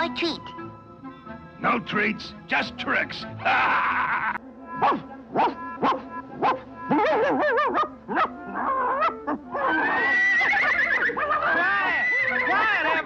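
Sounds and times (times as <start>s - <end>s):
cartoon score music: 0.0s - 13.0s
warbling wavering cries: 6.8s - 13.0s
cartoon sliding yelps: 6.9s - 13.0s.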